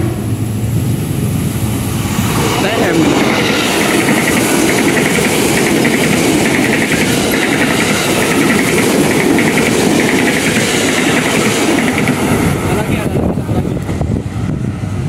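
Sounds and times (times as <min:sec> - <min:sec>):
electric train passing: 0:00.0 - 0:15.0.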